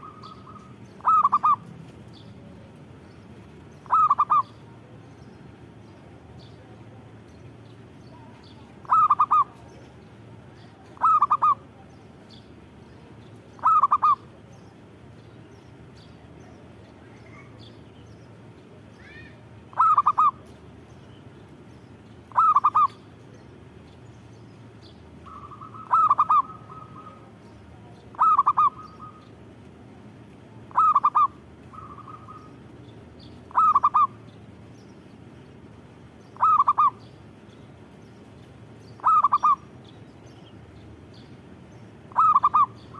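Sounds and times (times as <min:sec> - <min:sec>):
dove cooing trills: 0:00.0 - 0:01.7, 0:03.8 - 0:05.0, 0:08.4 - 0:09.8, 0:10.6 - 0:11.8, 0:13.6 - 0:14.4, 0:19.7 - 0:20.5, 0:22.2 - 0:23.0, 0:25.2 - 0:29.4, 0:30.7 - 0:34.3, 0:36.4 - 0:37.2, 0:38.9 - 0:39.8, 0:41.9 - 0:42.9.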